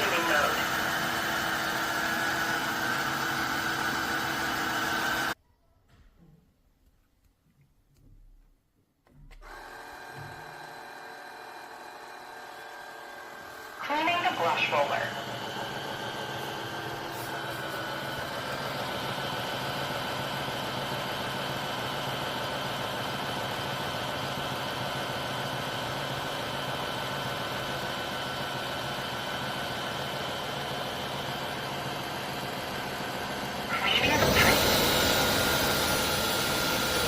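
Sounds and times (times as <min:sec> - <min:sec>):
floor cleaner motor hum: 0:00.0 - 0:05.4, 0:09.4 - 0:37.0.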